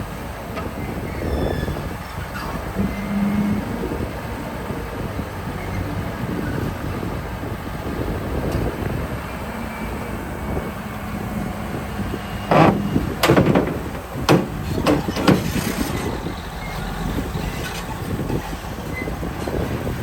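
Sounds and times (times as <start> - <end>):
heavy earthmoving machinery running: 0.0 - 20.0
loud metal clanks and clatter: 12.5 - 16.4.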